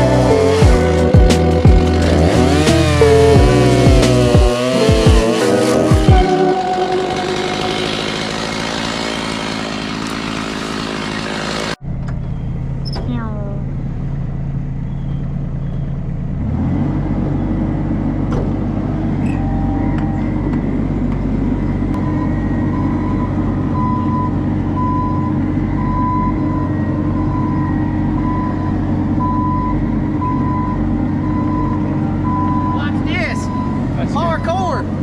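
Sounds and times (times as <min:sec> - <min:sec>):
heavy machine engine revving: 0:00.0 - 0:35.0
reversing alarm beeping: 0:19.2 - 0:20.6, 0:21.9 - 0:34.8.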